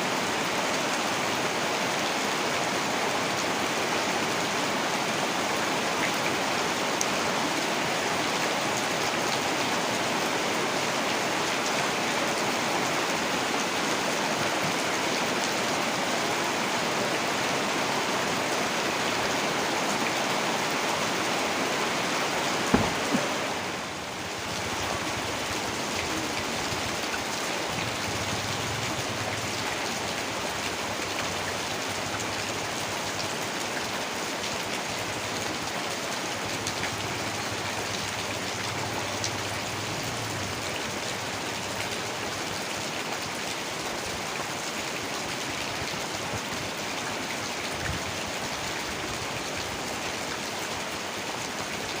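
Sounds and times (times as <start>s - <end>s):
heavy rain falling: 0.0s - 52.0s
sharp knocks: 22.7s - 23.4s.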